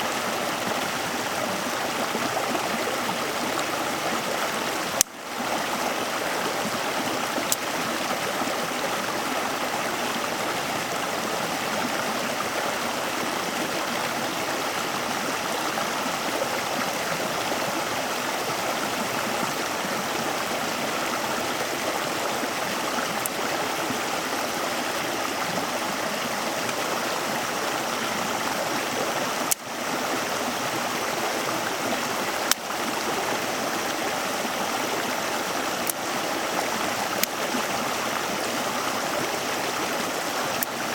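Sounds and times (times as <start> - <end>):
flowing water rushing: 0.0 - 40.9
faint clicks: 4.9 - 5.2, 7.3 - 7.8, 23.0 - 23.5, 29.4 - 29.7, 32.4 - 32.8, 37.0 - 37.6, 40.4 - 40.9.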